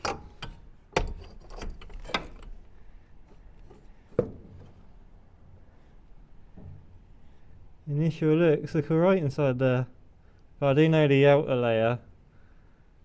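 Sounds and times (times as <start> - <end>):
objects knocking and clattering: 0.0 - 2.6, 3.3 - 4.9
scraping: 0.0 - 5.1.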